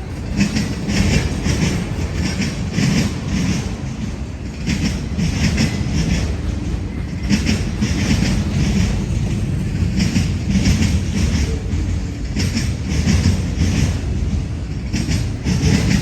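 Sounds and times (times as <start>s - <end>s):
train low rumble: 0.0s - 16.0s
train wheels clicking over rail joints: 0.0s - 16.0s.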